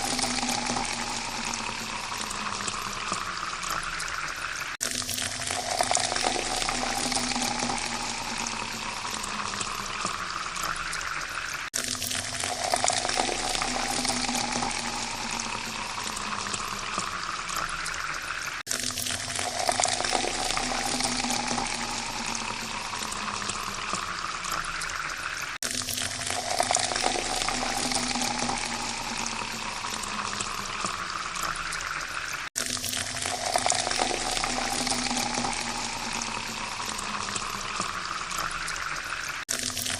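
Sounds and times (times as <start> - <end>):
water pouring into a glass: 0.0 - 39.9.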